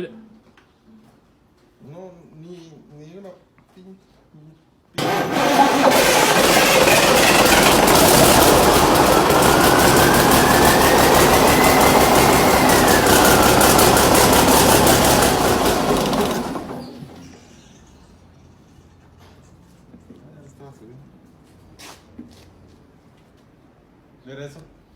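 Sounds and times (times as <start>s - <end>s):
diesel engine cranking: 5.0s - 17.4s
rising whine: 5.8s - 17.2s.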